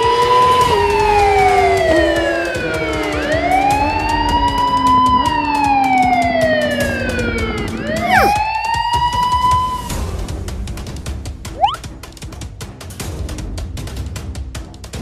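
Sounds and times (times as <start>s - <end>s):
emergency vehicle siren wailing: 0.1s - 8.4s.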